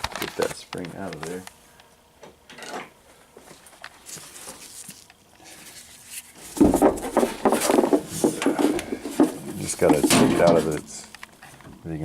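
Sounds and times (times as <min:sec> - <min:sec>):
metal clattering and scraping: 0:06.4 - 0:11.1.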